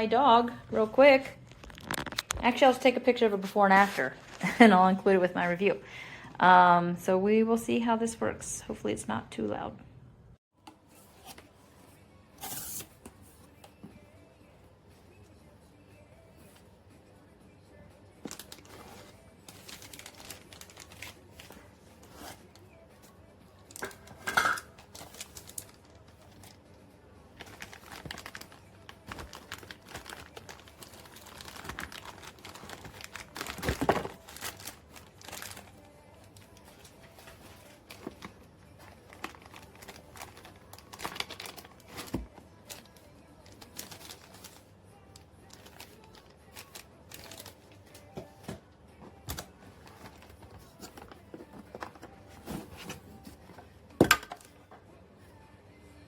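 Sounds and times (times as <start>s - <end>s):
objects being handled: 45.5s - 54.8s.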